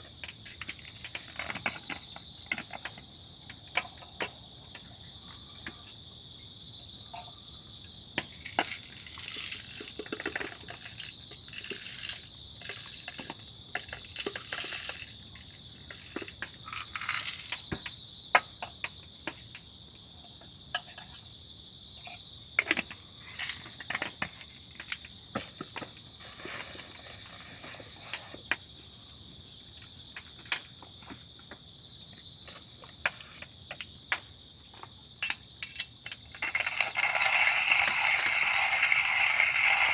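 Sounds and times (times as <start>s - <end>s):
insects chirping: 0.0s - 39.9s
small gear clicking and clinking: 8.2s - 17.7s, 35.2s - 39.9s.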